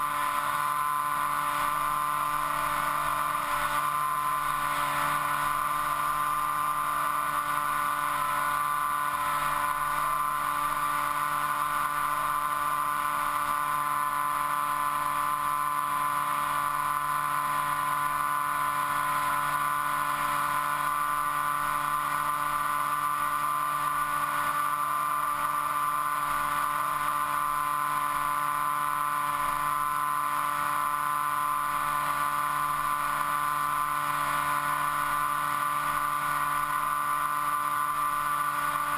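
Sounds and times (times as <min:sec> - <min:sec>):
model aircraft motor whine: 0:00.0 - 0:38.9.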